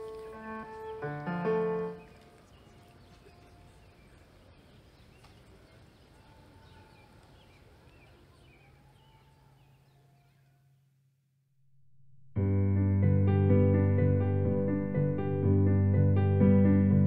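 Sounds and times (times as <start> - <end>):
birds chirping: 0.0 - 10.8.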